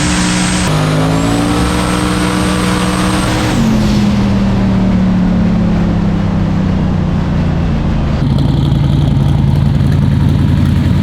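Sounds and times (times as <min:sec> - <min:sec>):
drag race car engine: 0:00.0 - 0:04.7, 0:08.1 - 0:11.0.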